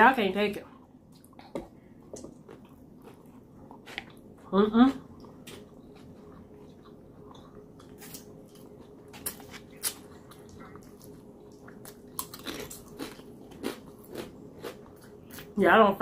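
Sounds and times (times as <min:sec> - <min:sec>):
soft chewing: 0:00.6 - 0:15.6
crunchy chip bites: 0:11.9 - 0:14.8.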